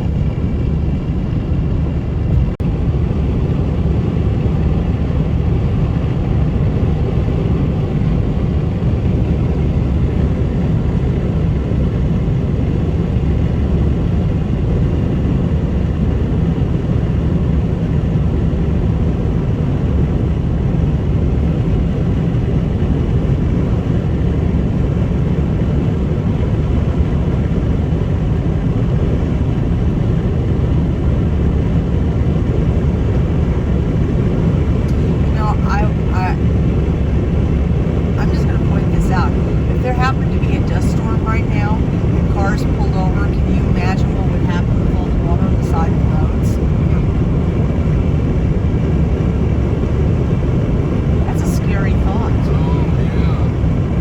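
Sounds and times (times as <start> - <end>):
car road noise from inside: 32.5 - 54.0.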